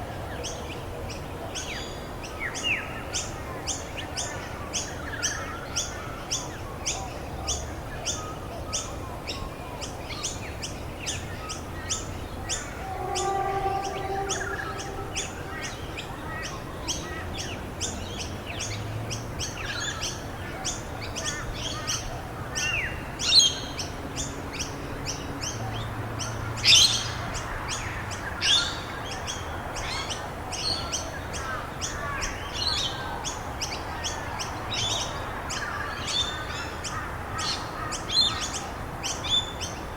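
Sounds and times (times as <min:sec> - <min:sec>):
sweeping bird calls: 0:11.9 - 0:17.1.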